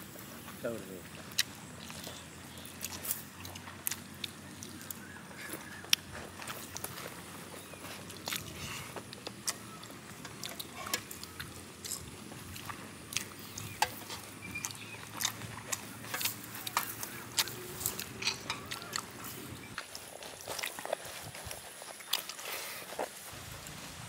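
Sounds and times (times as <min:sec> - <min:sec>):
wet mouth chewing smacks: 0:01.3 - 0:05.0, 0:08.0 - 0:11.5, 0:14.5 - 0:21.1.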